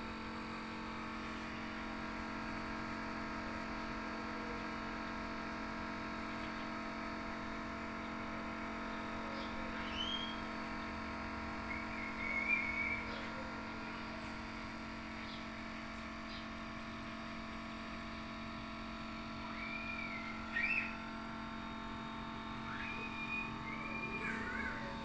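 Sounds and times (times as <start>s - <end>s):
electrical hum: 0.0s - 25.0s
rising-and-falling chirps: 19.5s - 20.9s.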